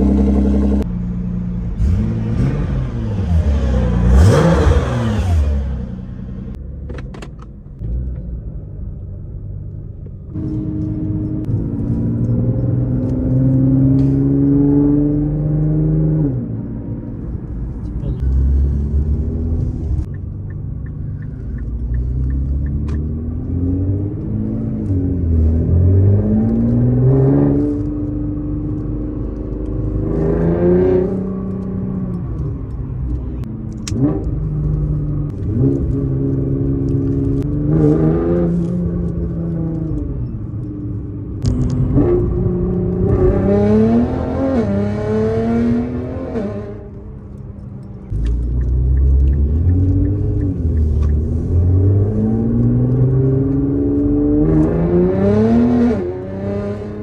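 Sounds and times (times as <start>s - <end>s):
car engine accelerating through gears: 0.0s - 57.0s.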